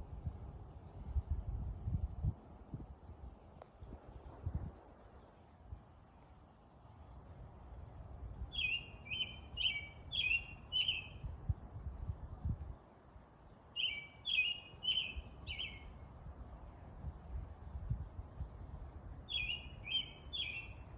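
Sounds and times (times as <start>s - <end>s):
birds chirping: 8.1s - 11.2s, 13.8s - 16.2s, 19.3s - 20.9s.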